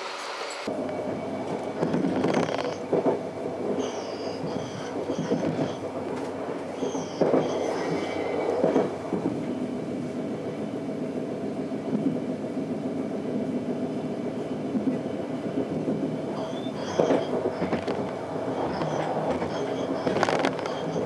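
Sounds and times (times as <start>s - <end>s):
train wheels and diesel engine rumble: 0.0s - 21.0s
high squeal: 3.8s - 5.8s, 6.8s - 8.6s, 16.4s - 21.0s.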